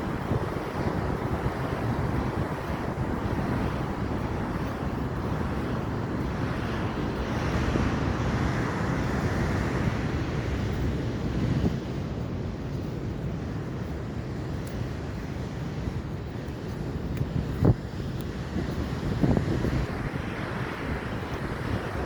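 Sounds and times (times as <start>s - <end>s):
wind on microphone: 0.0s - 22.0s
ocean surf rushing: 17.6s - 22.0s.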